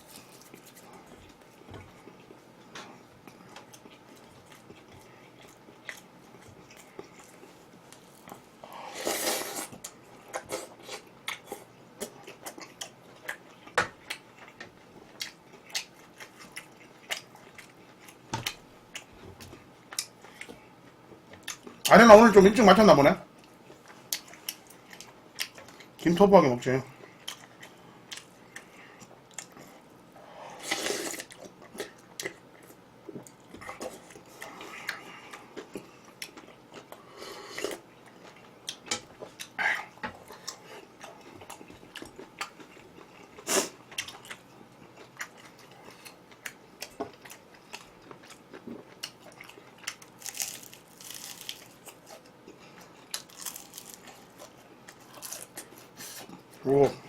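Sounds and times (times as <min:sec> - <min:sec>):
food being chewed: 0:00.0 - 0:21.9, 0:23.4 - 0:26.0, 0:27.0 - 0:30.1, 0:30.7 - 0:56.6
crunchy bites: 0:50.1 - 0:52.2, 0:53.1 - 0:54.2.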